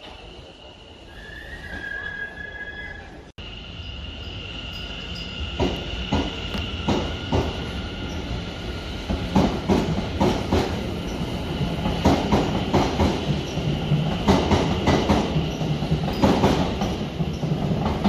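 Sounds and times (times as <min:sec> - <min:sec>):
faint high whine: 0:00.0 - 0:06.7
train wheels clacking over joints: 0:09.1 - 0:18.0.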